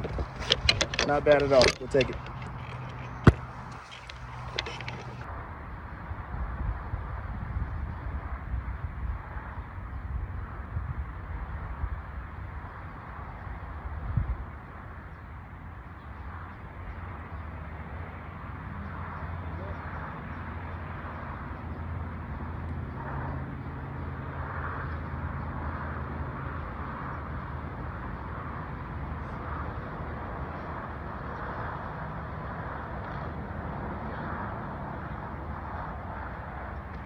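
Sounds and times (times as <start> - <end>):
tyre and wind noise: 0.0 - 5.4
golf cart running drone: 0.0 - 6.2, 14.5 - 37.0.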